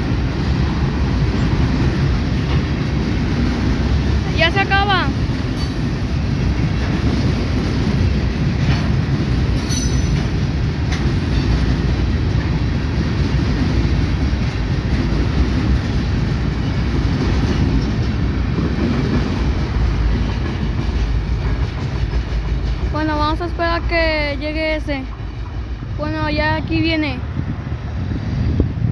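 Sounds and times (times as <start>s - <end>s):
freight train rumbling past: 0.0s - 28.9s
train wheel clicks: 5.3s - 26.1s.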